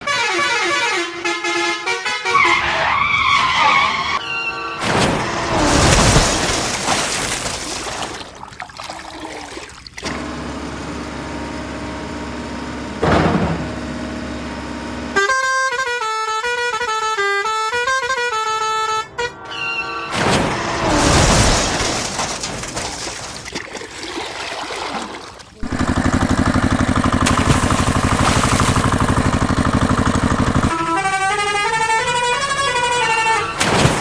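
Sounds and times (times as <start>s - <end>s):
low engine-like hum: 9.8s - 15.3s, 25.5s - 30.8s
horn-like pitched tones: 15.2s - 20.2s.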